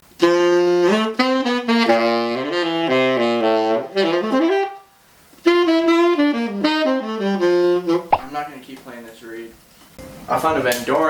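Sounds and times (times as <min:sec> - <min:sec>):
tenor saxophone playing jazz: 0:00.2 - 0:08.4.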